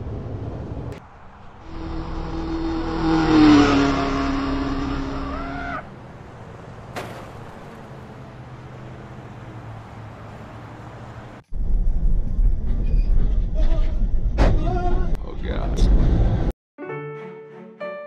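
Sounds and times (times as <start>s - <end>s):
low road hum: 0.0s - 16.5s
vehicle engine passing close: 0.4s - 11.4s.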